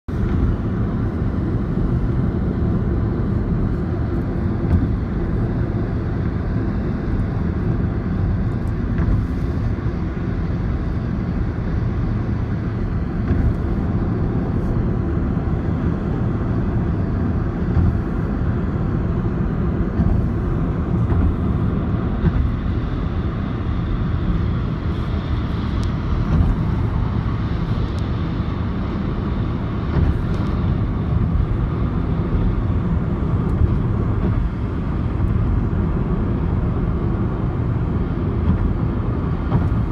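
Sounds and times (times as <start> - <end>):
airplane engine drone: 0.1 - 39.9.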